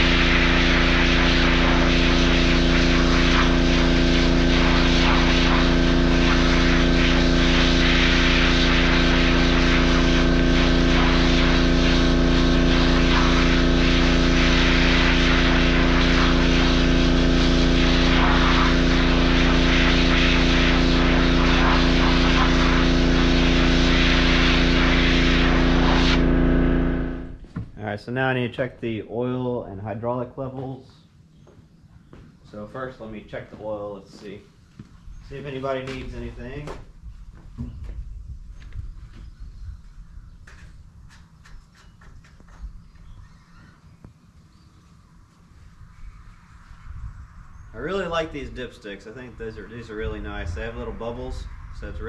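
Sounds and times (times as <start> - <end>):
machine motor droning: 0.0 - 27.4, 47.6 - 52.0.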